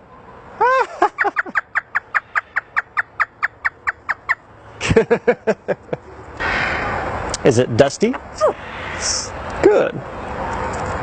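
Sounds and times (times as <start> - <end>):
parrot imitating laughter: 0.6 - 1.9.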